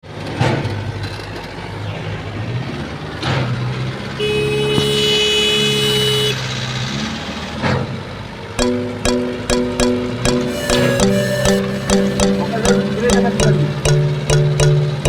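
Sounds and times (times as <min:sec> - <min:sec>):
vehicle horn: 0:10.5 - 0:14.0.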